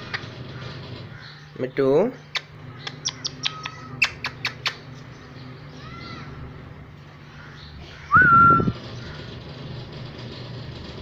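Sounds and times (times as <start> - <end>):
parrot squawking and calling: 2.8 - 4.8.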